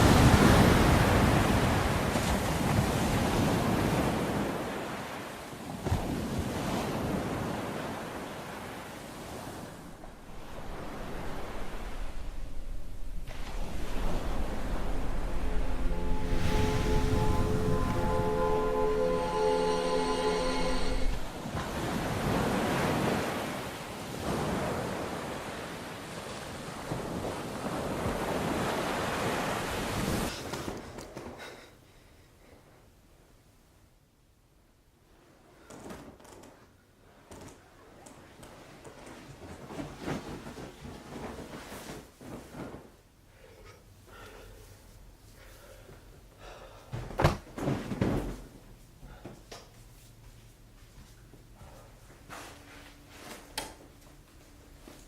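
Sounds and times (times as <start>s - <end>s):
ocean surf washing: 0.0s - 30.8s.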